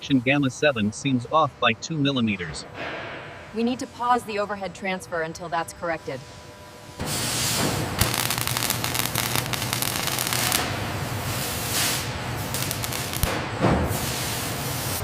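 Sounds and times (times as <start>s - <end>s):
low machine hum: 0.0s - 15.0s
crackling and hiss: 7.0s - 15.0s.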